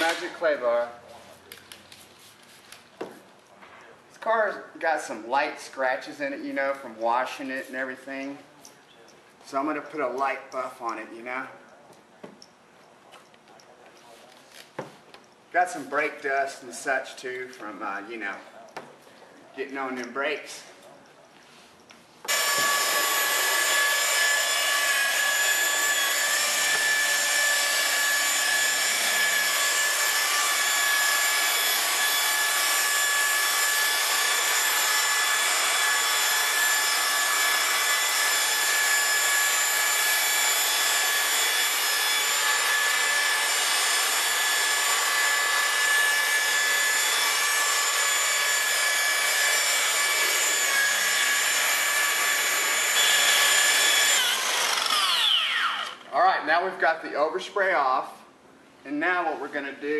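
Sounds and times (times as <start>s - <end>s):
electric polishing buffer running: 22.3s - 56.0s.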